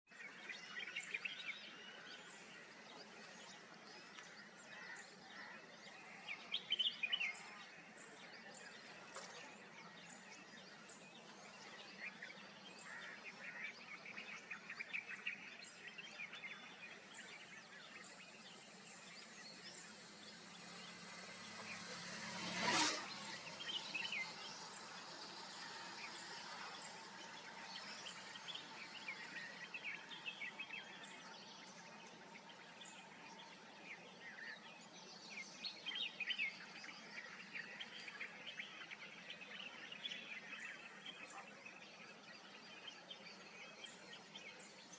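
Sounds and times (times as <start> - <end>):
loud whoosh: 19.8 - 30.2.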